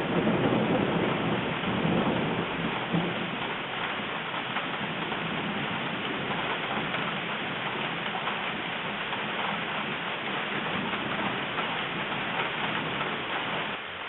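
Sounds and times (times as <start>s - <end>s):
rain hissing: 0.0s - 14.0s
raindrops pattering: 0.0s - 14.0s.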